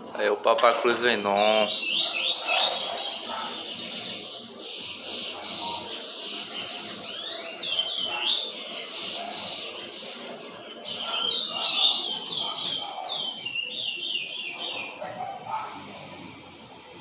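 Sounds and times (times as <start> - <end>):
small birds calling: 0.0 - 17.0
bird singing whistled notes: 10.9 - 15.0.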